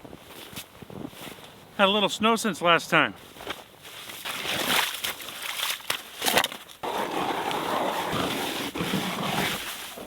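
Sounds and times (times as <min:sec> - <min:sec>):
scraping and grinding on ice: 0:06.1 - 0:10.0.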